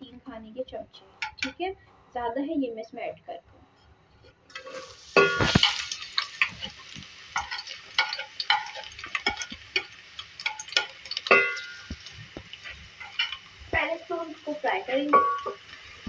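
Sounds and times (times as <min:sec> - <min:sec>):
garlic sizzling in hot oil: 0:04.5 - 0:16.0
oil popping and crackling: 0:04.5 - 0:16.0.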